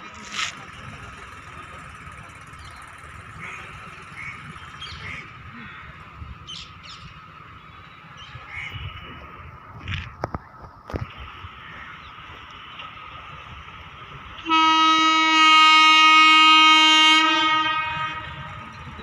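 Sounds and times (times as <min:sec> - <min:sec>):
low steady rumble: 0:00.0 - 0:19.0
small birds chirping: 0:02.5 - 0:09.0.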